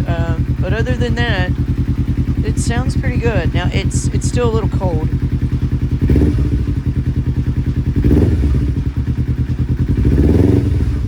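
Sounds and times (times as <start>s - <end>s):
throttle blips: 0.0s - 8.4s
motorcycle engine idling: 0.0s - 11.0s.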